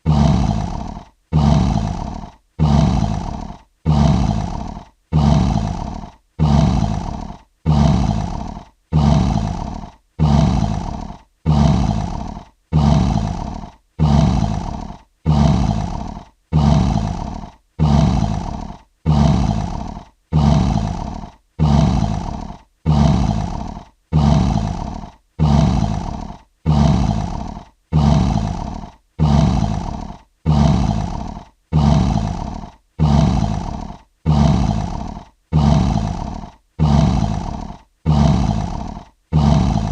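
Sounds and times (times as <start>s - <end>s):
lion roaring: 0.0s - 39.9s.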